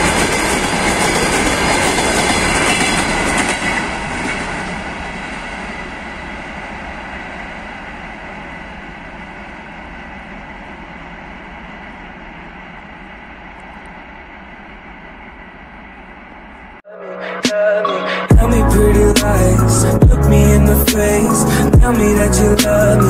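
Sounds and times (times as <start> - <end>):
freight train wheels clacking: 0.0 - 16.7
train rumble: 0.0 - 16.8, 18.3 - 23.0.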